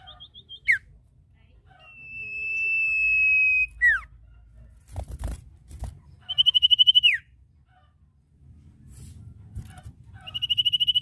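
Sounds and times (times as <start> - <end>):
fast pulsed bird whistle: 0.0 - 0.8, 1.9 - 4.1, 6.3 - 7.3, 10.3 - 11.0
bird whistling call: 1.9 - 4.1, 6.3 - 7.2, 10.3 - 11.0.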